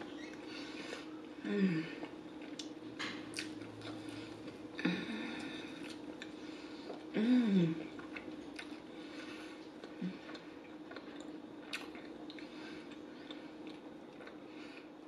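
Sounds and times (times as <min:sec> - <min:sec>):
faint steady hum: 0:00.0 - 0:15.0
person chewing with wet clicks: 0:00.2 - 0:04.8, 0:05.4 - 0:15.0
person humming mmm: 0:01.4 - 0:02.1, 0:07.1 - 0:07.9.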